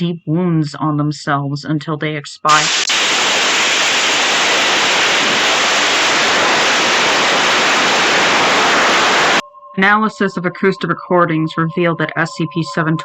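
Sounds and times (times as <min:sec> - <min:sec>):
loud static hiss: 0:02.5 - 0:09.4.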